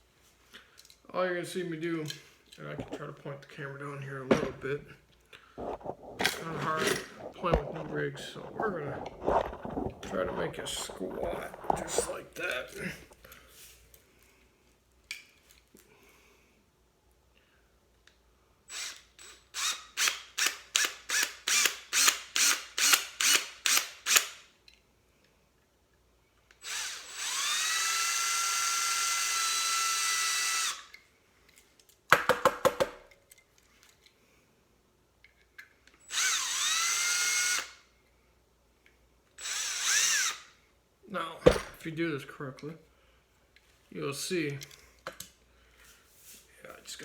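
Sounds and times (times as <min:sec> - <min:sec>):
power drill bursts: 0:18.7 - 0:24.4, 0:26.6 - 0:30.9, 0:36.1 - 0:37.8, 0:39.4 - 0:40.5.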